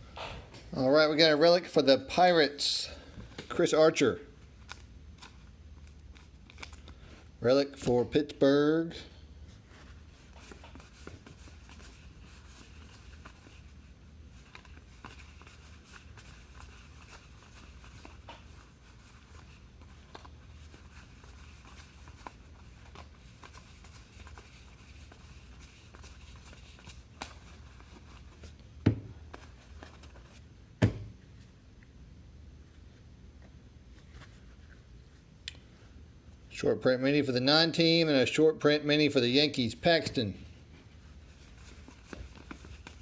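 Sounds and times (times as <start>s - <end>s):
low steady hum: 0.0s - 43.0s
wrappers rustling: 9.6s - 28.6s, 41.0s - 43.0s.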